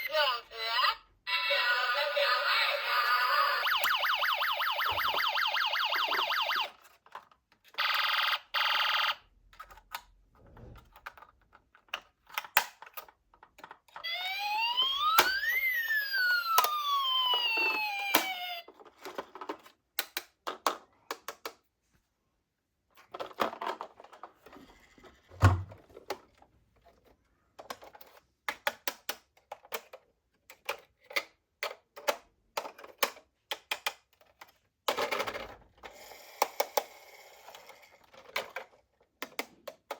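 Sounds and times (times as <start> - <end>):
toy police siren: 1.3 - 6.9, 7.7 - 9.2, 14.0 - 18.8
plastic toy cars clicking: 6.8 - 8.0, 9.4 - 10.2, 10.8 - 14.1, 16.5 - 21.7, 22.9 - 39.9.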